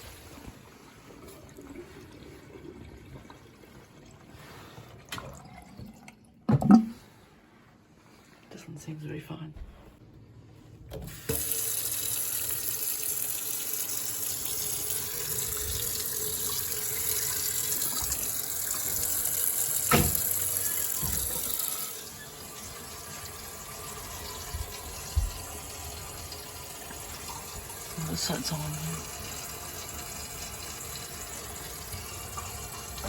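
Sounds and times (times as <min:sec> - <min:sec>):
faucet running into a sink: 0:10.9 - 0:33.0.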